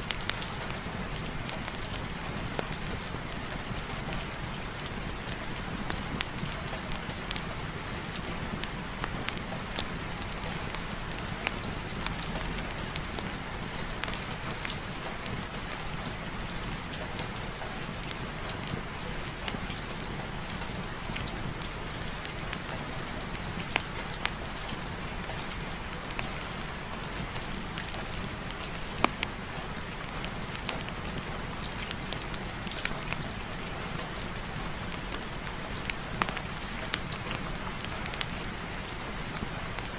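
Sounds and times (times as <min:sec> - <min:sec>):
steady rain: 0:00.0 - 0:39.9
sharp ticks and pops: 0:29.0 - 0:29.3, 0:35.1 - 0:38.6.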